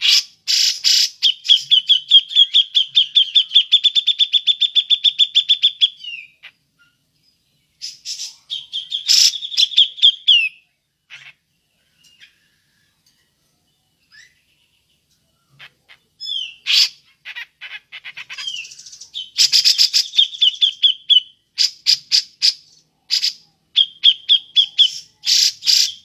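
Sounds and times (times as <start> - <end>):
bulbul calling: 7.8 - 11.4, 15.3 - 26.0.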